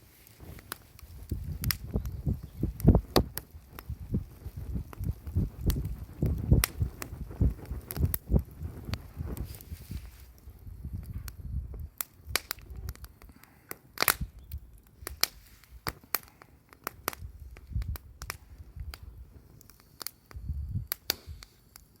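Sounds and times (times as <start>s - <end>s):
campfire crackling and popping: 0.0s - 22.0s
low rumbles: 0.4s - 9.8s.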